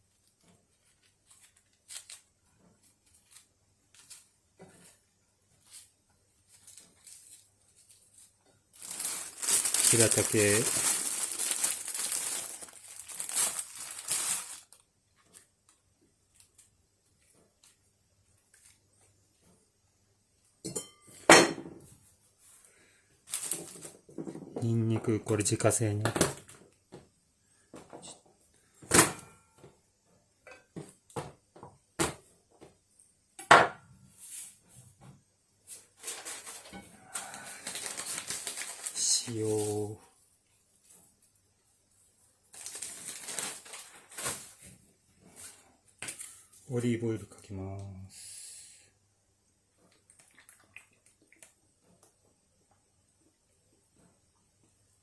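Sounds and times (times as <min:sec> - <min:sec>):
soft rustling hiss: 0:00.0 - 0:21.2, 0:37.5 - 0:55.0
packaging crinkling and tearing: 0:00.7 - 0:02.3, 0:06.5 - 0:15.5, 0:23.3 - 0:24.0, 0:36.0 - 0:39.8, 0:42.5 - 0:44.6
cookware clinking and knocking: 0:20.6 - 0:21.8.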